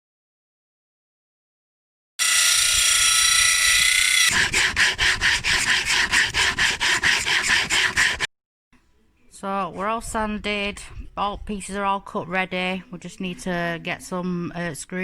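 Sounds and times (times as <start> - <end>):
sandpaper rubbing on wood: 4.2 - 8.3.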